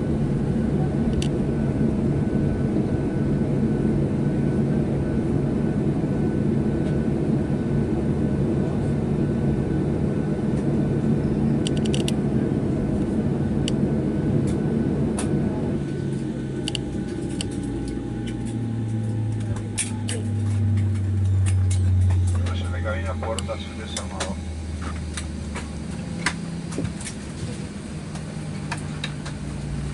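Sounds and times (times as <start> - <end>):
aircraft cabin engine hum: 0.0 - 29.9
small clicks: 11.6 - 12.2.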